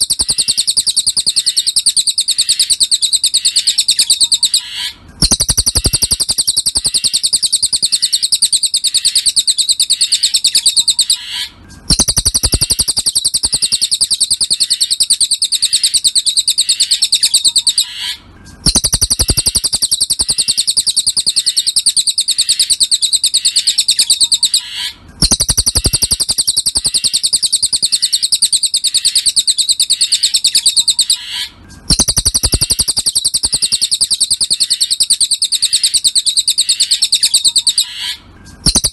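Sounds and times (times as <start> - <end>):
bird singing high trill: 0.0 - 38.9.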